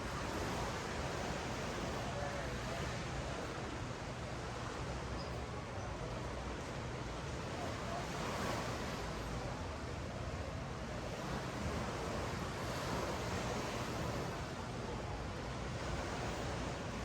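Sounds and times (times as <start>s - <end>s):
ocean waves on sandy beach: 0.0s - 4.8s, 6.5s - 17.0s.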